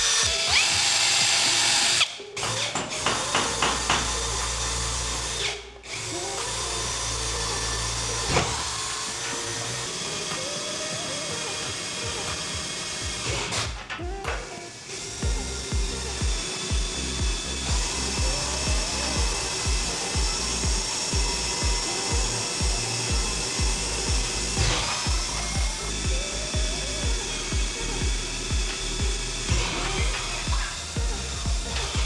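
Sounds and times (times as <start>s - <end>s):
background music with beat: 0.0s - 32.0s
electric drill drilling metal: 0.0s - 32.0s.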